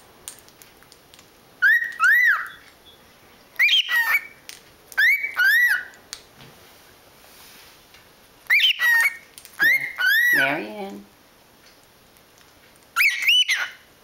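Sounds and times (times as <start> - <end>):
cockatiel whistling: 1.6 - 3.0, 3.6 - 4.4, 5.0 - 5.9, 8.5 - 10.6, 13.0 - 13.8.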